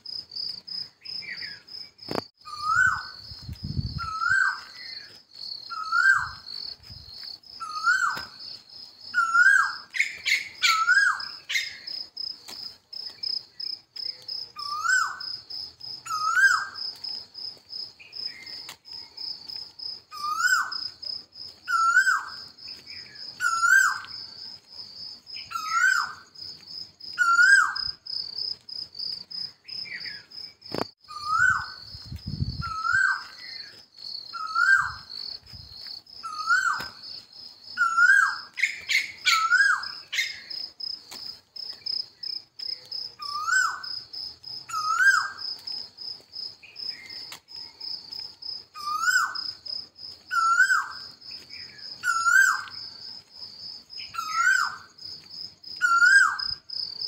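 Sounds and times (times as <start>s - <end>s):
insect chirring: 0.0s - 57.0s
bird calling: 4.0s - 6.4s, 7.6s - 8.4s, 9.2s - 11.9s, 14.6s - 15.3s, 16.0s - 16.8s, 21.7s - 24.2s, 25.4s - 26.2s, 27.1s - 28.0s, 34.3s - 35.1s, 36.2s - 37.0s, 37.8s - 40.5s, 43.2s - 43.8s, 44.7s - 45.4s, 50.3s - 51.0s, 51.6s - 52.8s.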